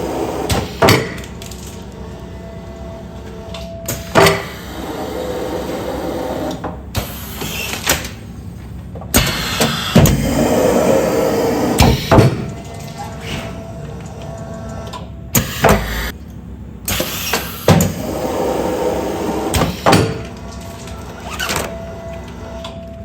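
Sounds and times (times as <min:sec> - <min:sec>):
sealing machine running: 0:00.0 - 0:08.2, 0:09.2 - 0:16.1
sharp machine clunks: 0:15.3 - 0:16.1.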